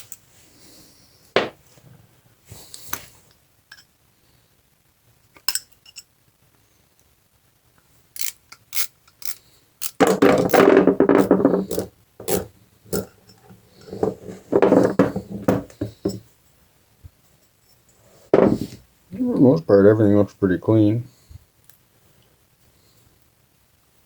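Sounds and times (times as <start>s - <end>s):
metal parts rubbing and scraping: 8.2s - 16.2s.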